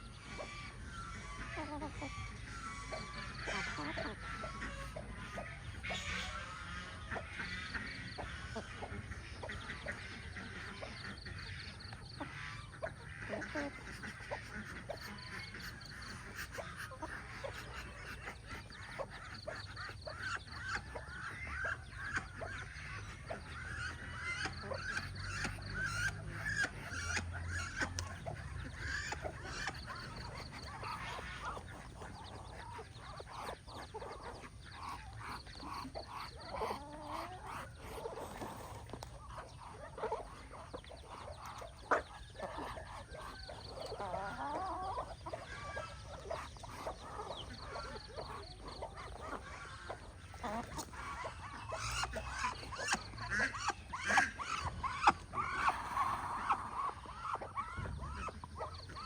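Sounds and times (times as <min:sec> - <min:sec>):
poultry clucking and honking: 0:00.0 - 0:59.0.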